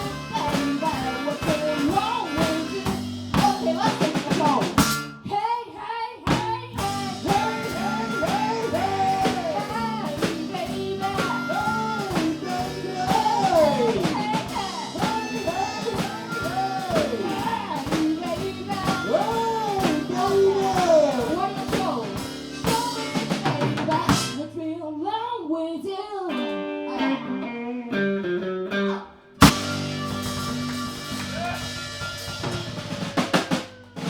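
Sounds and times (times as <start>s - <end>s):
blues band playing: 0.0s - 5.3s, 6.3s - 24.6s, 26.3s - 34.0s
lead guitar bending notes: 28.0s - 33.1s.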